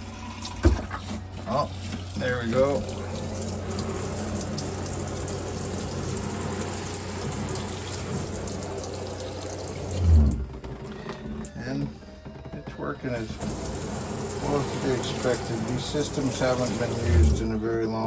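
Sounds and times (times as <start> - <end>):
water pump humming: 0.0 - 10.6, 13.2 - 18.0
shower head spraying water: 1.0 - 10.4, 13.2 - 17.6.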